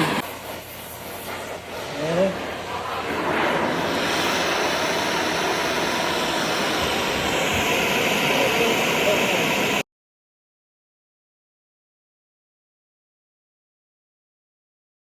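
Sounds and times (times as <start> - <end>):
gas torch flame roaring: 0.0 - 9.8.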